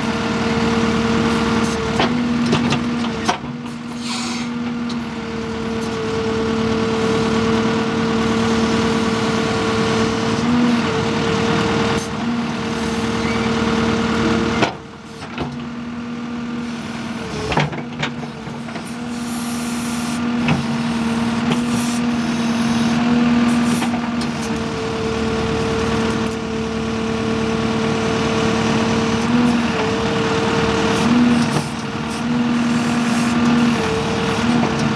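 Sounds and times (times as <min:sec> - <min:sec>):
backhoe engine running: 0:00.0 - 0:34.9.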